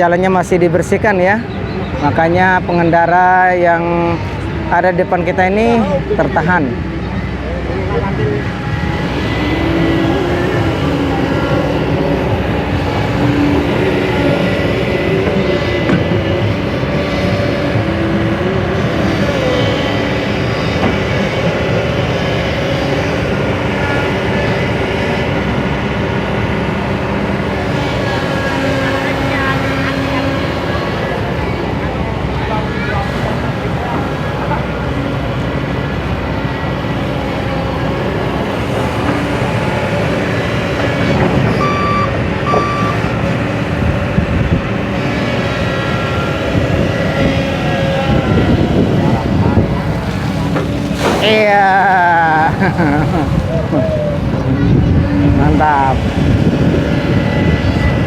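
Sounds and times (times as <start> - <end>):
heavy engines running: 0.0 - 58.0
reversing alarm beeps: 41.4 - 43.3.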